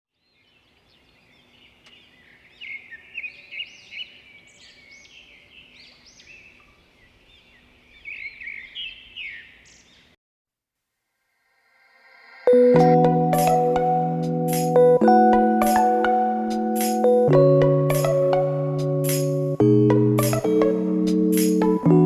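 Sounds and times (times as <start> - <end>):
birds chirping and twittering: 0.1 - 10.2.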